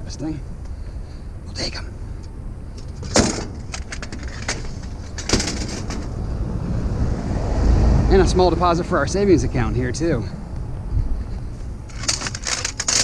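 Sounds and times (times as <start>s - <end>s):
low vehicle rumble: 0.0s - 13.0s
metal vents clanking and rattling: 2.8s - 6.2s, 11.9s - 13.0s.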